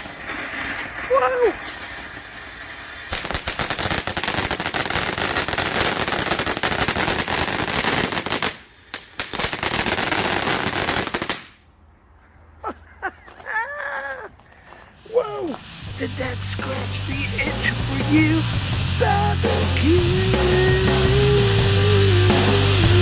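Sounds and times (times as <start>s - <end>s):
glitter crackling: 0.0s - 8.6s, 15.1s - 23.0s
firework fountain hissing spray: 0.0s - 11.6s, 14.8s - 23.0s.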